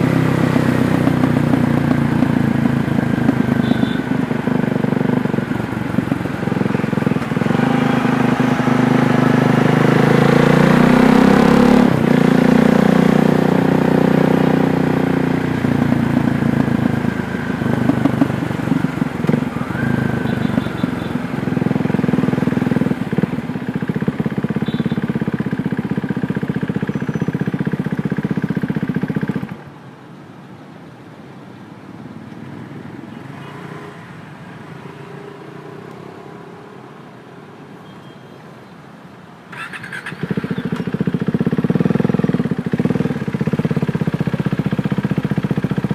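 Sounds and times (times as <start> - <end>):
motorcycle engine revving: 0.0 - 29.6, 39.5 - 45.9.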